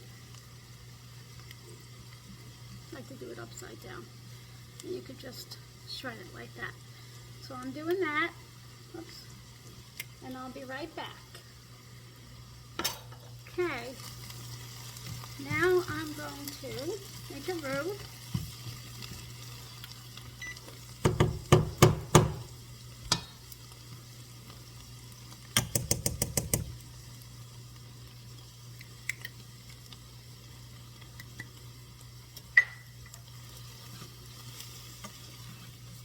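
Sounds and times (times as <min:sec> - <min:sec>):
faint sizzle: 0:00.0 - 0:36.0
utensil knocking against pan: 0:21.0 - 0:22.5, 0:25.6 - 0:26.7.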